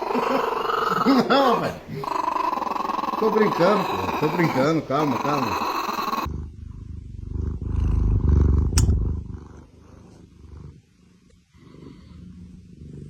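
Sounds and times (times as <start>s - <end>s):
animal low rumbling: 2.0s - 13.0s
sharp click: 8.7s - 9.0s.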